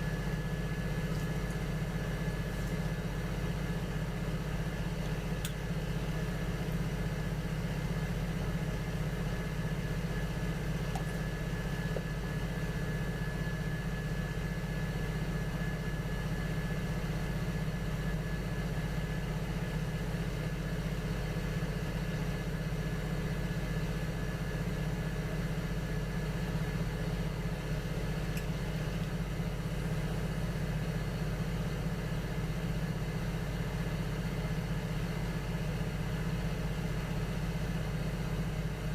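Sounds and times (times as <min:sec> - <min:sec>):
potter's wheel motor humming: 0:00.0 - 0:15.6.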